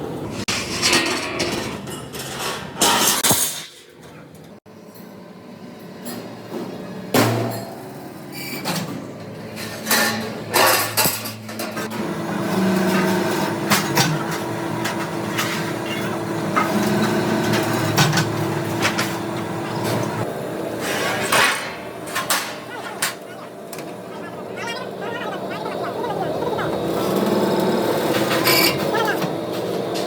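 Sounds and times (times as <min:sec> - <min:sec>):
steady machine hum: 0:10.5 - 0:29.9.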